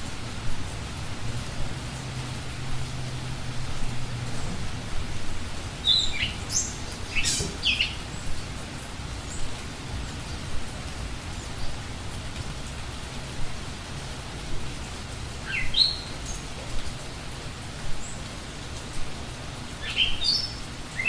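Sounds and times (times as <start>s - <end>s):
steady background hiss: 0.0s - 21.0s
bird short high calls: 5.8s - 8.0s.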